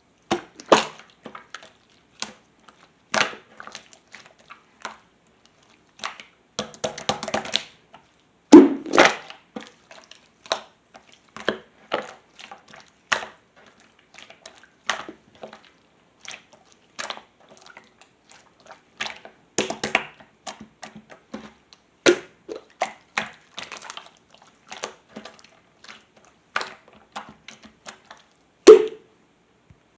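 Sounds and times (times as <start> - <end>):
slime squeezed by hand: 8.5 - 9.3, 28.7 - 29.0.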